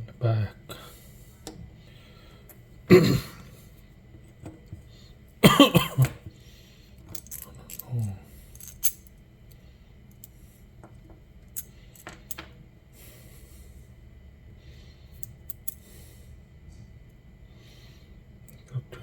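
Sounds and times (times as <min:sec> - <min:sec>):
low steady hum: 0:00.0 - 0:19.0
small parts clicking and tapping: 0:07.0 - 0:12.6, 0:15.2 - 0:15.8.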